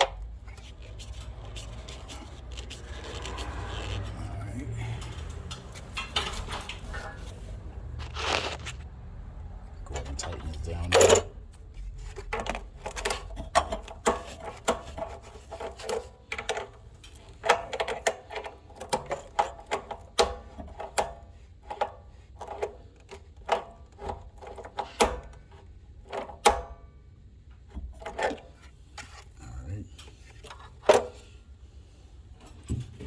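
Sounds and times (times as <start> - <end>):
pipe fittings clicking and knocking: 4.9 - 7.4, 9.8 - 26.7.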